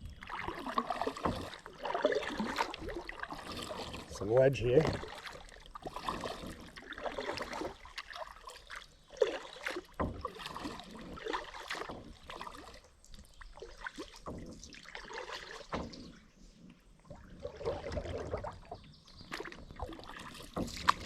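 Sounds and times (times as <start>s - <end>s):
kayak paddle splashing water: 0.0s - 21.0s.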